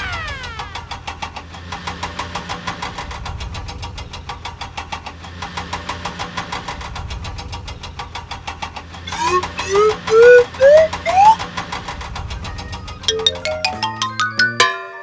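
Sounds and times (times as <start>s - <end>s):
cartoon engine chugging: 0.0s - 1.2s, 9.1s - 11.4s, 13.1s - 14.6s.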